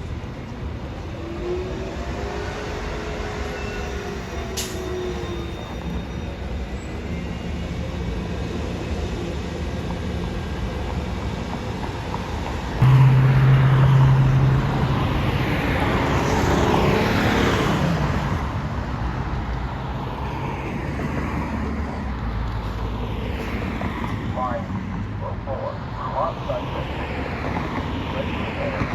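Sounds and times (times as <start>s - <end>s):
road traffic rumbling: 11.6s - 28.9s
large vehicle passing: 12.8s - 18.7s.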